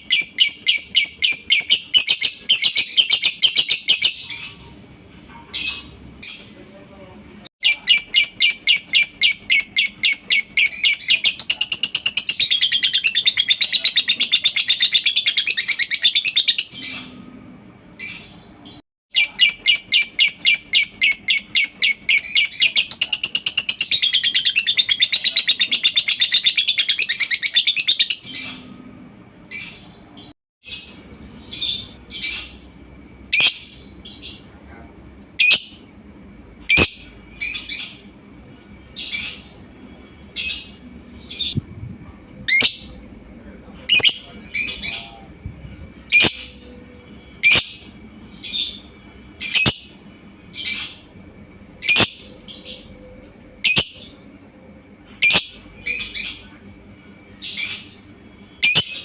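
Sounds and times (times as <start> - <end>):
bird chattering trill: 0.0 - 4.7, 7.6 - 16.9, 19.1 - 28.4, 49.4 - 50.0, 51.8 - 52.8, 53.6 - 54.1, 55.2 - 56.4, 58.6 - 59.0
bird chirps: 0.0 - 4.7, 57.4 - 59.0.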